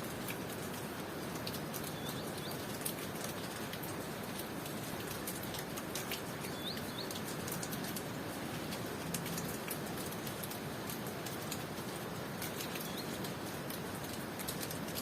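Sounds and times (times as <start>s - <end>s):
steady rain: 0.0s - 15.0s
bird chirping: 1.9s - 2.6s, 6.4s - 7.2s, 12.6s - 13.2s.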